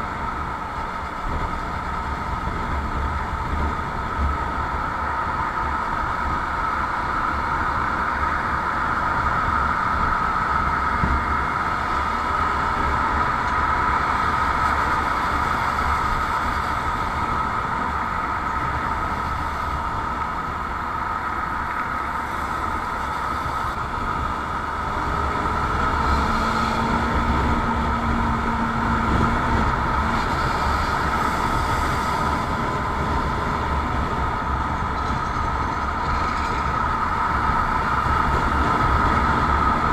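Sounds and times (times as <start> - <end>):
road and wind noise: 0.0 - 39.9.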